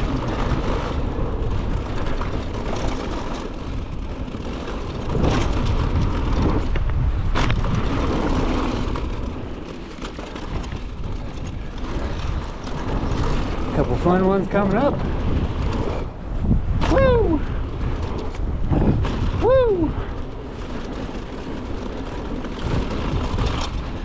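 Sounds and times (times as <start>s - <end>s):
bike frame and chain rattling: 0.0s - 24.0s
tyres rolling over dirt: 0.0s - 24.0s
wind rush on microphone: 0.0s - 24.0s.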